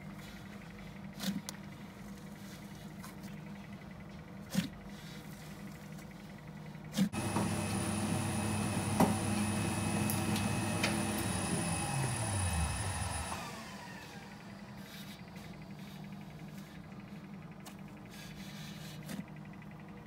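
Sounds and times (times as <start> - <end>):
mixer motor whining: 6.9 - 18.1.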